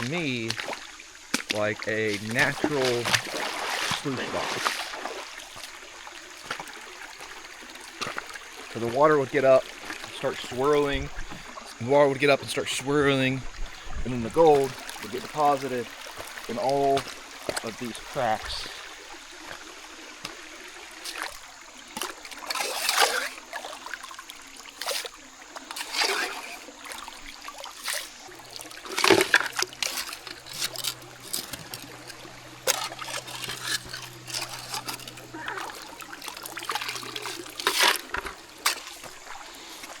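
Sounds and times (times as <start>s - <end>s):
creek trickling: 0.0s - 40.0s
water splashing by hand: 0.0s - 40.0s.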